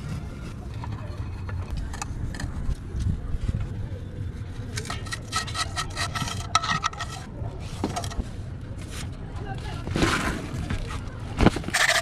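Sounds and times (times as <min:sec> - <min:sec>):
scraping strokes: 0:04.7 - 0:09.2, 0:09.8 - 0:12.0.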